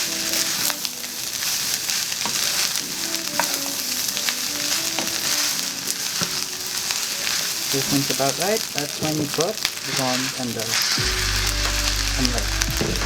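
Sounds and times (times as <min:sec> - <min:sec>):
rice sizzling in a pan: 0:00.0 - 0:13.0.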